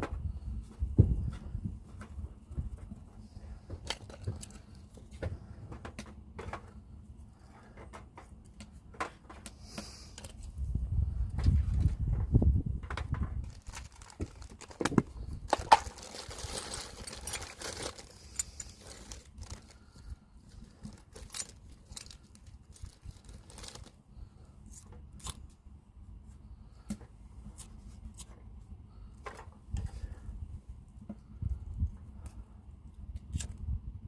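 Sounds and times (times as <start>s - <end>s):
objects clicking and rustling: 12.8s - 24.0s
crinkling or tearing noise: 13.0s - 24.0s.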